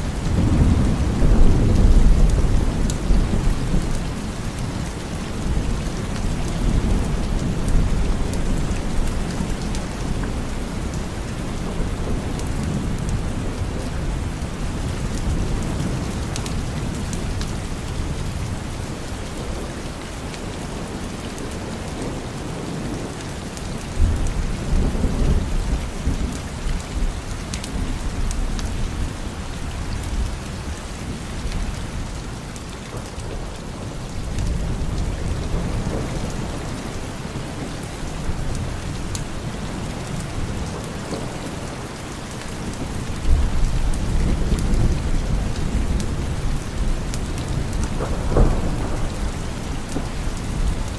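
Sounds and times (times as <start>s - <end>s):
distant thunder rumbling: 0.0s - 18.7s, 32.9s - 50.9s
steady rain falling: 0.0s - 50.9s.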